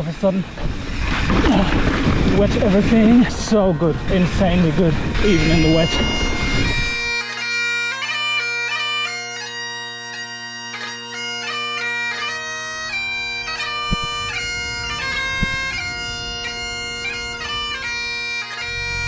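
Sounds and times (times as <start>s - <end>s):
low rumble: 0.7s - 7.1s, 12.8s - 19.0s
bagpipe tune: 3.3s - 19.0s.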